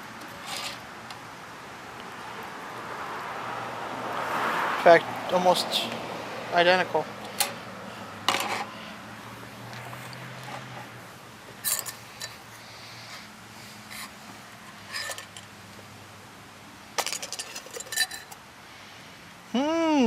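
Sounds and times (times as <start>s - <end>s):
metal parts clinking: 11.6s - 12.4s, 14.9s - 15.5s, 17.0s - 18.4s.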